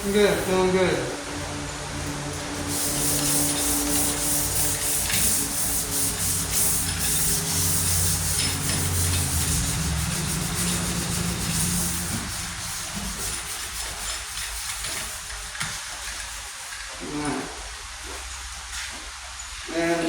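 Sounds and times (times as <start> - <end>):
sandpaper rubbing on steel: 2.4 - 17.0.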